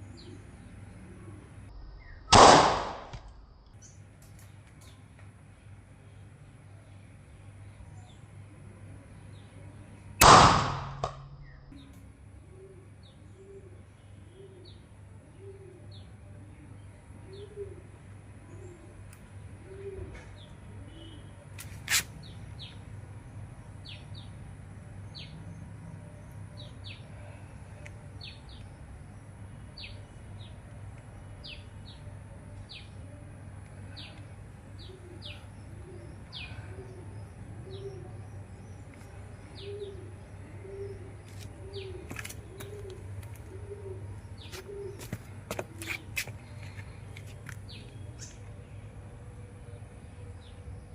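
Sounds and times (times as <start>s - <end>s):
air rifle shot: 2.3s - 3.4s, 10.2s - 11.4s
dove cooing: 19.6s - 20.3s, 34.8s - 38.2s, 39.6s - 46.0s
small birds chirping: 25.1s - 48.8s.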